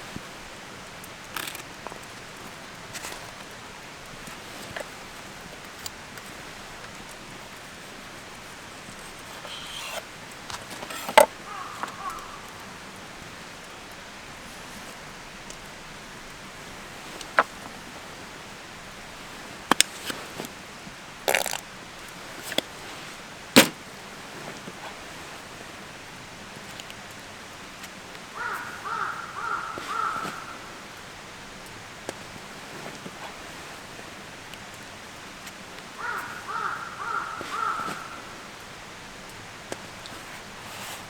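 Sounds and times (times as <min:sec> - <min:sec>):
outdoor hiss: 0:00.0 - 0:41.0
utensils clicking and knocking: 0:09.3 - 0:12.0.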